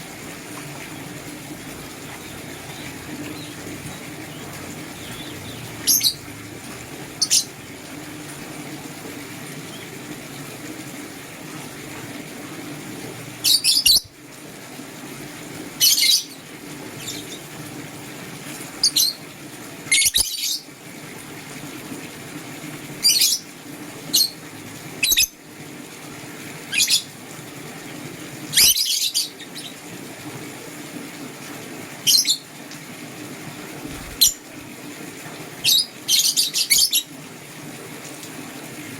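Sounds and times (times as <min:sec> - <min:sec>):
lovebirds chirping: 0:00.8 - 0:06.3, 0:07.1 - 0:07.8.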